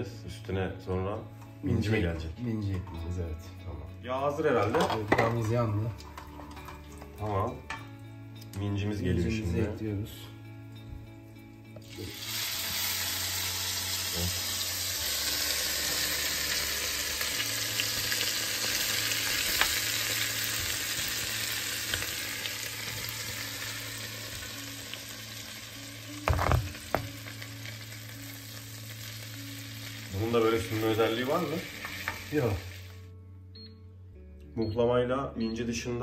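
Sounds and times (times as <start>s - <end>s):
cheese sizzling in butter: 11.8s - 33.0s.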